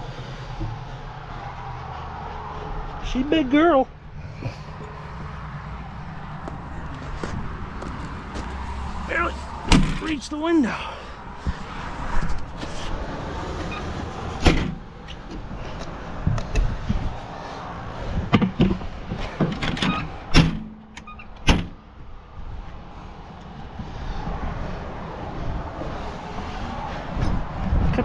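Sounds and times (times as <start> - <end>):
steady background rumble: 0.0 - 28.0
sharp knocks and clunks: 9.6 - 10.2, 14.4 - 15.6, 18.2 - 21.8.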